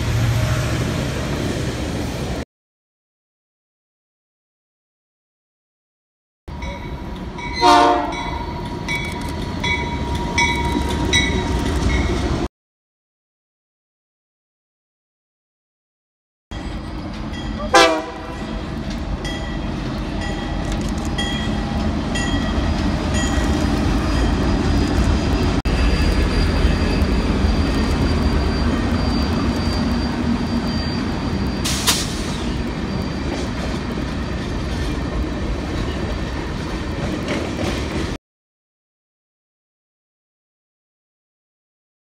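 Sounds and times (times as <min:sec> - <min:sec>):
diesel locomotives rumbling: 0:00.0 - 0:02.4, 0:06.5 - 0:12.5, 0:16.5 - 0:38.2
wheels clattering on rails: 0:18.4 - 0:38.2
high wheel squeal: 0:25.7 - 0:35.1.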